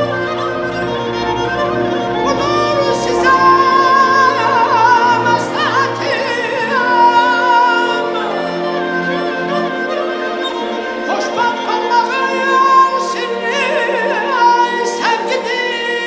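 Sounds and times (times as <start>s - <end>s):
orchestral string chords: 0.0s - 16.0s
man singing with trilled ornaments: 2.2s - 9.2s.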